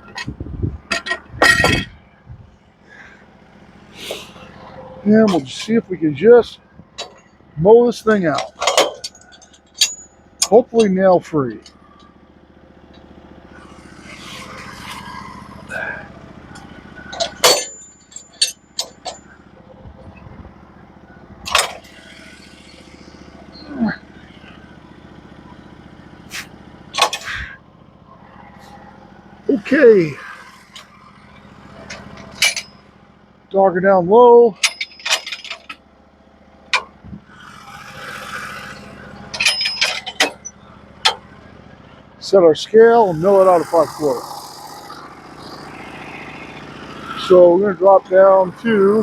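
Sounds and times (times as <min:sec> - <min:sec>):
sharp metallic clanks: 0:00.0 - 0:02.0, 0:04.0 - 0:12.2, 0:12.9 - 0:20.2, 0:21.4 - 0:24.8, 0:26.2 - 0:27.6, 0:28.4 - 0:33.0, 0:34.5 - 0:35.8, 0:36.6 - 0:42.0
engine idling: 0:00.0 - 0:49.0.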